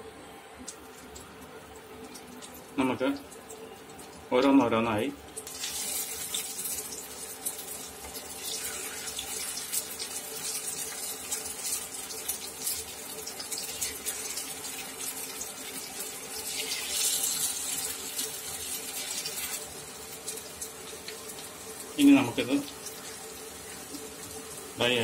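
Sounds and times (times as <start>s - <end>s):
steady hum: 0.0s - 5.4s
slices sizzling in oil: 5.2s - 25.0s.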